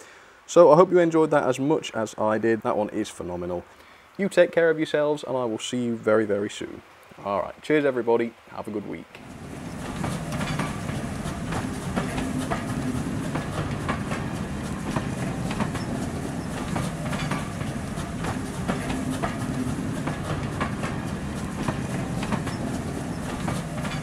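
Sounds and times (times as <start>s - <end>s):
train carriages rumbling: 9.2s - 24.0s
wheels clicking over rail joints: 9.2s - 24.0s.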